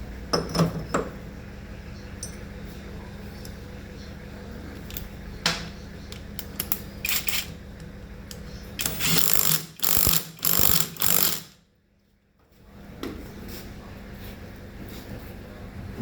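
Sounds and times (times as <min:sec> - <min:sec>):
hand tools clicking and ratcheting: 0:06.4 - 0:07.5, 0:08.8 - 0:11.5.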